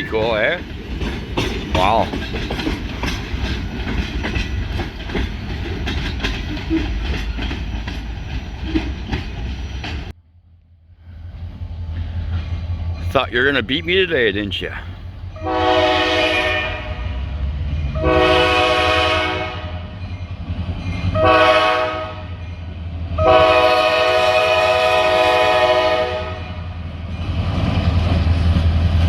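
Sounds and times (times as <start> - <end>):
locomotive horn blasts: 15.4 - 17.3, 17.9 - 19.9, 21.1 - 22.4, 23.2 - 26.7.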